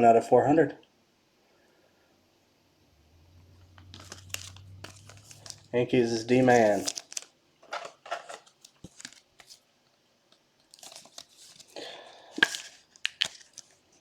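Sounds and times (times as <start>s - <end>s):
card packaging rustling and tearing: 3.7s - 9.7s, 10.6s - 14.0s.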